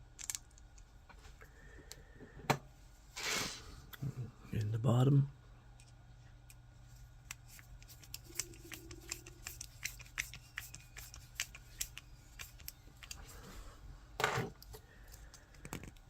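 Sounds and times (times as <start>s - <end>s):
plastic parts clicking: 0.2s - 0.6s.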